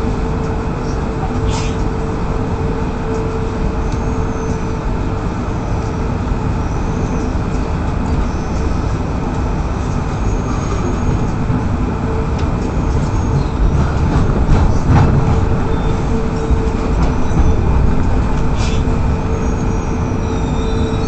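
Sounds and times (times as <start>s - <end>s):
train clatter: 0.0s - 21.0s
train rumbling on rails: 0.0s - 21.0s
faint wheel squeals: 10.2s - 11.2s.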